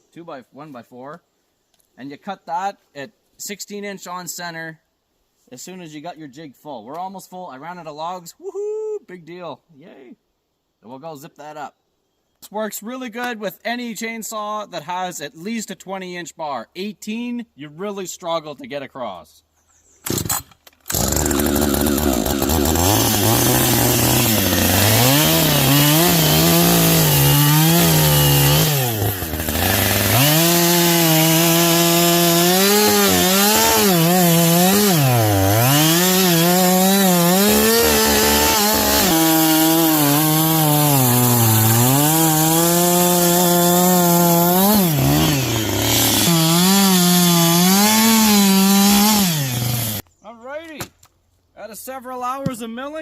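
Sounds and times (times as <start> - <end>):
chainsaw cutting wood: 20.0 - 50.0.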